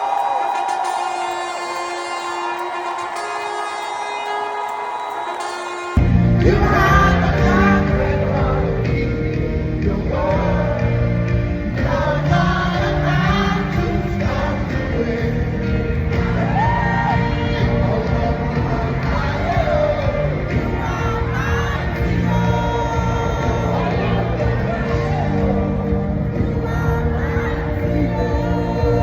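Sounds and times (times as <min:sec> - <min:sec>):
congregation shouting: 0:00.0 - 0:08.7
live worship music with singing: 0:00.0 - 0:29.0.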